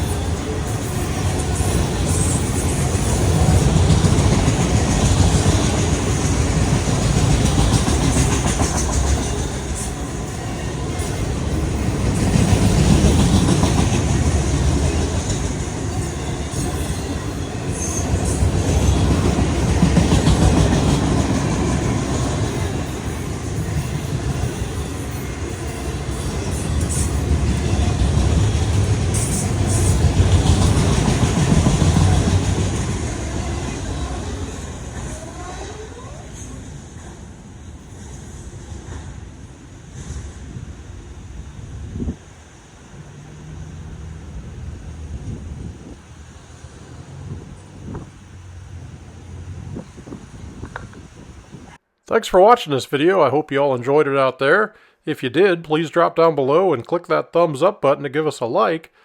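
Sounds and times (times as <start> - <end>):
wheels clacking over rails: 0.0 - 39.3
freight cars rumbling: 0.0 - 51.8.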